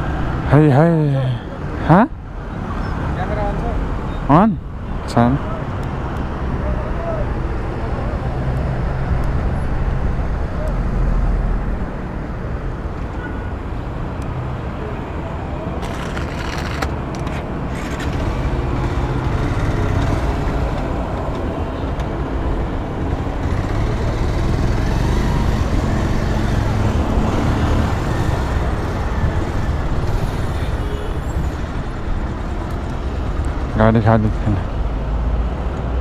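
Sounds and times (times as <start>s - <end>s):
road noise: 0.0s - 36.0s
vehicle engine rumbling: 0.0s - 36.0s.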